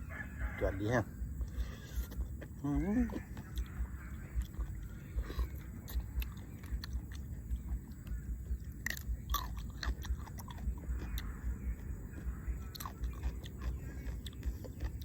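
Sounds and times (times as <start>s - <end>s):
person chewing food: 1.2s - 15.0s
sharp crunches: 8.7s - 15.0s.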